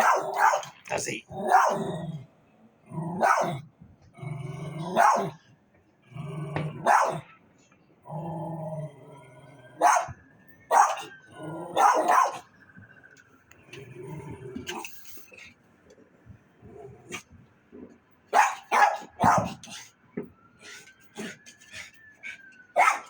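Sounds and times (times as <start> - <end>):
dog barking: 0.0 - 1.9, 3.1 - 3.6, 4.8 - 5.4, 6.8 - 7.4, 9.8 - 11.1, 11.7 - 12.5, 18.3 - 19.8, 22.8 - 23.0
dog growling: 1.3 - 5.4, 6.1 - 7.2, 8.1 - 9.8, 13.6 - 15.5, 21.2 - 21.4.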